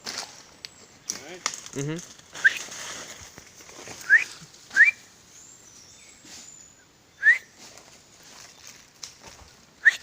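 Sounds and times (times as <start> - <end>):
person whistling rising notes: 4.0 - 5.1, 7.2 - 7.6.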